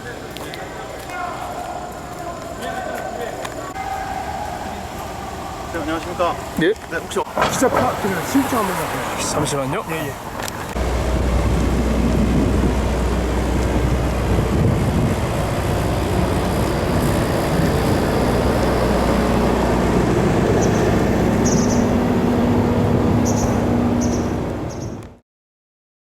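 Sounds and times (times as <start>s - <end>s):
low vehicle rumble: 3.6s - 25.2s
humming tone: 10.8s - 25.1s.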